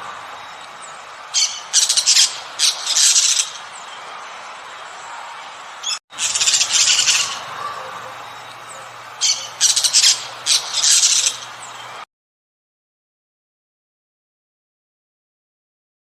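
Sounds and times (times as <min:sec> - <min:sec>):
bird calling: 0:00.0 - 0:04.0, 0:05.8 - 0:12.0.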